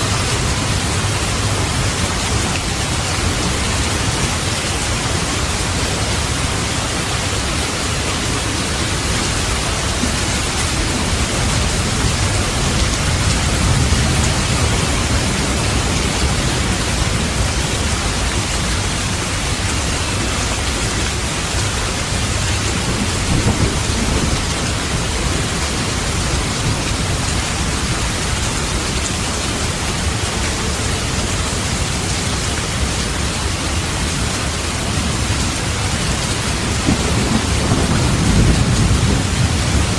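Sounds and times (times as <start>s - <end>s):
heavy rain: 0.0s - 39.9s
thunder rumbling: 21.4s - 28.7s, 36.0s - 39.9s.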